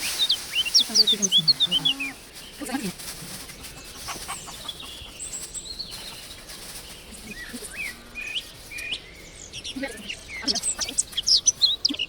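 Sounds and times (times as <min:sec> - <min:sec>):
chicken clucking: 0:00.0 - 0:08.9
birds chirping: 0:00.0 - 0:12.0.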